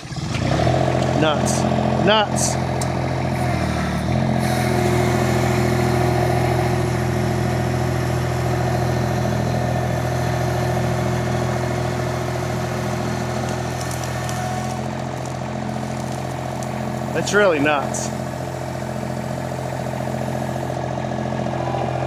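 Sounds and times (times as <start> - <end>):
skid steer engine running: 0.0 - 22.0.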